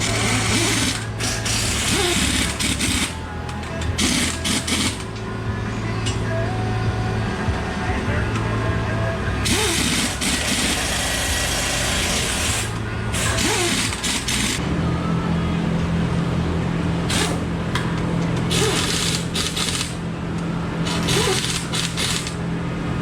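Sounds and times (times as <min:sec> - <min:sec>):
loud hissing: 0:00.0 - 0:05.0
engine running: 0:00.0 - 0:23.0.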